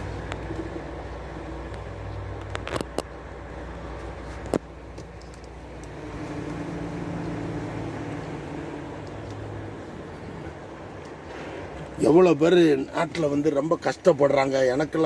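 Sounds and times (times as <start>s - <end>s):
heavy truck idling: 0.0s - 2.5s, 3.1s - 12.8s.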